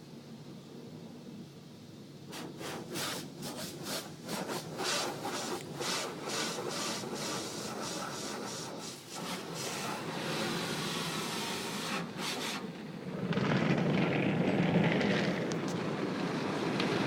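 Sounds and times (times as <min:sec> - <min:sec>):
car wash brushes swishing: 0:02.3 - 0:12.7.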